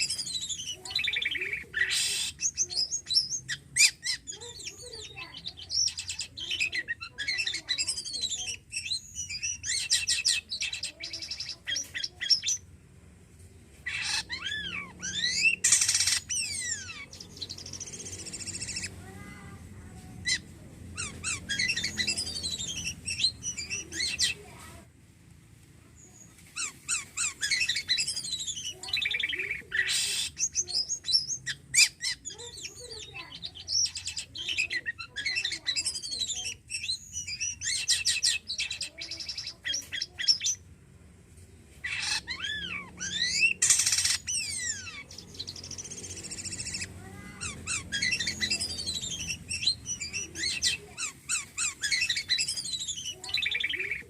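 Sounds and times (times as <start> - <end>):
starling singing: 0.0 - 12.7, 13.8 - 24.8, 26.0 - 40.7, 41.8 - 54.0.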